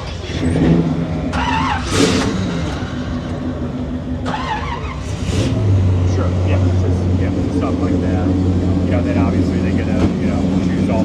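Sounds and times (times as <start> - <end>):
people talking: 0.0 - 0.5, 6.0 - 11.0
car engine idling: 0.0 - 11.0.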